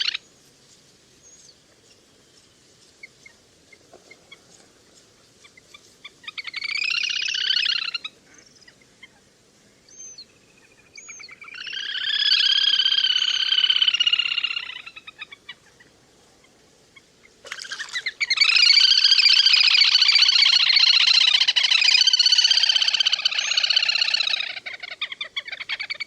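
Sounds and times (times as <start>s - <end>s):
duck pulsed chattering calls: 17.5s - 26.0s.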